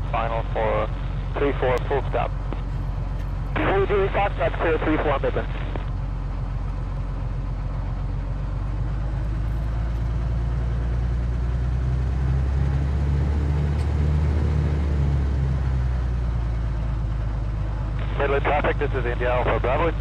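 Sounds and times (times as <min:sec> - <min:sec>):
light aircraft engine drone: 0:00.0 - 0:20.0.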